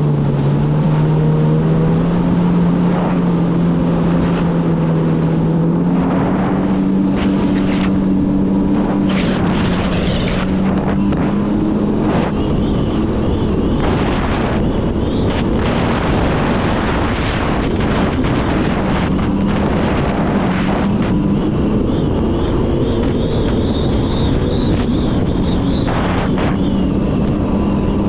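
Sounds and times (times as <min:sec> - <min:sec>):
jet ski engine running: 0:00.0 - 0:28.0
rushing water: 0:00.0 - 0:28.0
wind buffeting microphone: 0:00.0 - 0:28.0.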